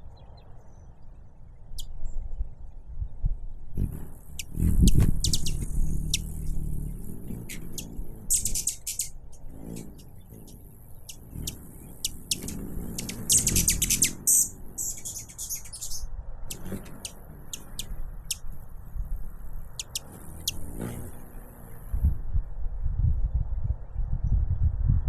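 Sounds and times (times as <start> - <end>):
hummingbird chip calls: 3.8 - 18.6, 19.6 - 22.0.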